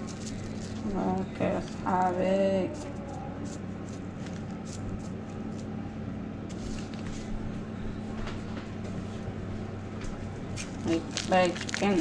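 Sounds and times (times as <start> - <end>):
rustling: 0.0 - 1.0, 10.6 - 12.0
steady low hum: 0.0 - 12.0.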